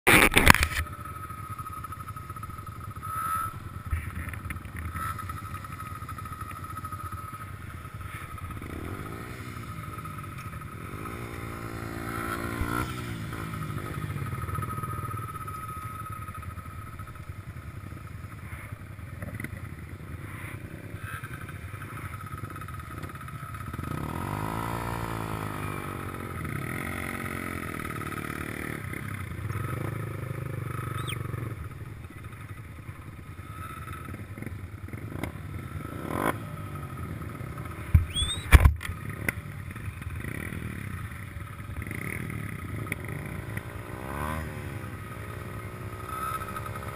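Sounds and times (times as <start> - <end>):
motorcycle engines revving: 0.1 - 46.9.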